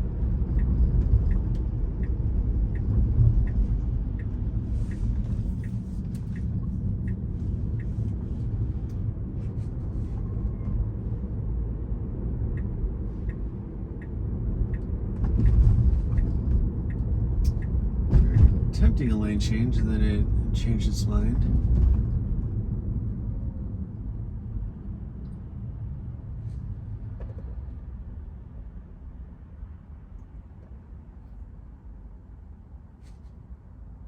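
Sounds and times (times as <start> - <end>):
road and tyre rumble: 0.0 - 34.0
turn signal ticking: 0.1 - 9.0, 12.0 - 20.0.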